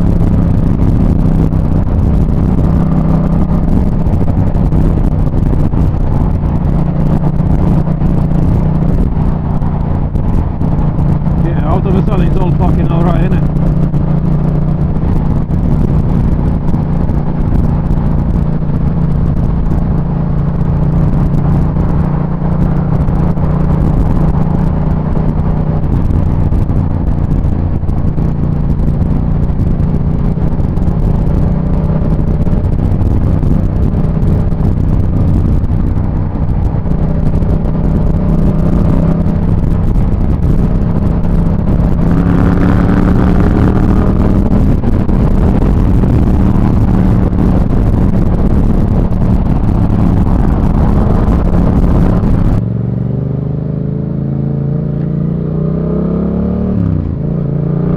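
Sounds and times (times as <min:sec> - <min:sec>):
motorcycle engine running: 0:00.0 - 0:57.9
road and wind noise: 0:00.0 - 0:57.9.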